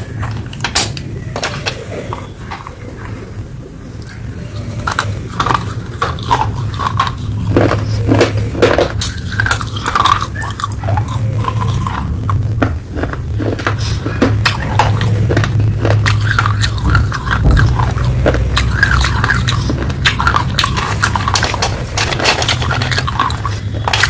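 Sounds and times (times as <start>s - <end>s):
steady low hum: 0.0s - 24.0s
biting and crunching hard earth: 4.4s - 24.0s
squeaky grinding between teeth: 13.0s - 24.0s.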